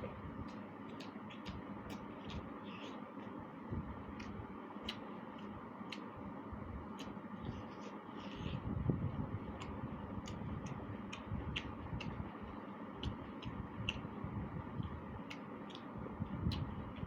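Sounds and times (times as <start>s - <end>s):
wet mouth clicks: 0.4s - 3.3s, 4.1s - 6.1s, 6.9s - 8.6s, 9.5s - 14.2s, 14.8s - 17.0s
chewing: 0.4s - 3.4s, 9.5s - 14.2s.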